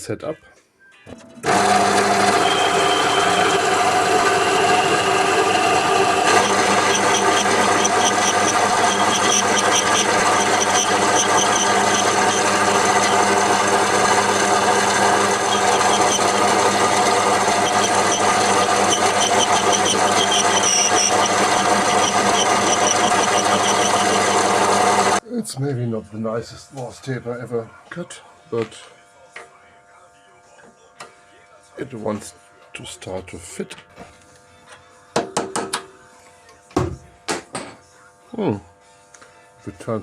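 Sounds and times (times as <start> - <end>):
cutting tool scraping metal: 1.4 - 25.2
metal lathe running: 1.4 - 25.2.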